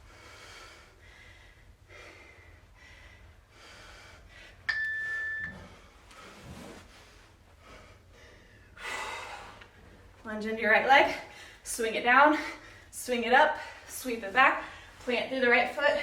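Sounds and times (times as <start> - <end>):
heavy breathing: 0.0 - 4.7, 5.6 - 10.1
high beep: 4.7 - 5.7.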